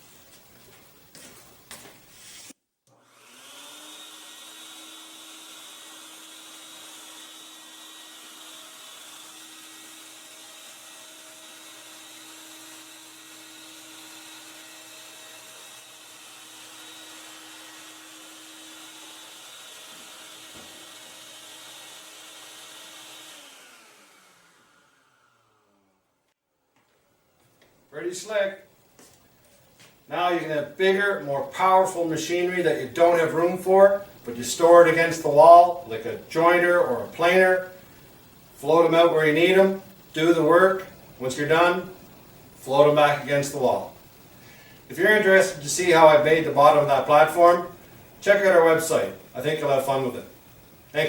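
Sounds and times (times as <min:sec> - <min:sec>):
vacuum motor whining: 0:17.7 - 0:25.9.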